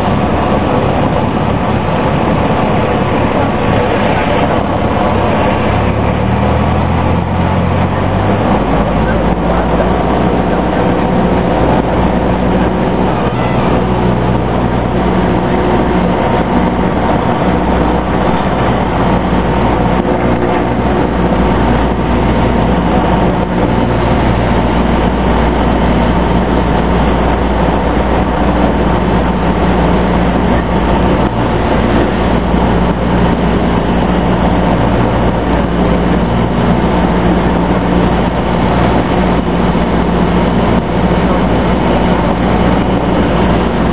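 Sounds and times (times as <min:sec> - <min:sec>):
light aircraft engine droning: 0:00.0 - 0:43.9.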